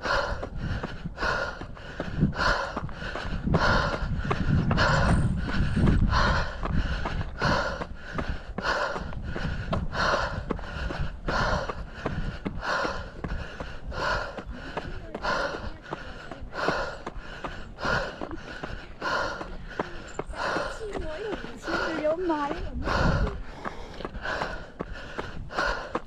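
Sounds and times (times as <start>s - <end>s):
footsteps on trail: 0.0s - 26.0s
runner panting: 0.0s - 26.0s
wind rumble on microphone: 0.0s - 26.0s.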